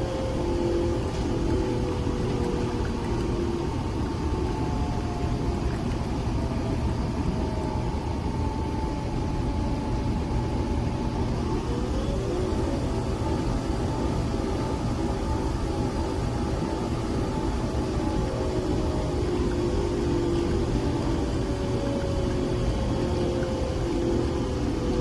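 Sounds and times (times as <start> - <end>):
coffee machine motor hum: 0.0 - 8.2, 8.9 - 25.0.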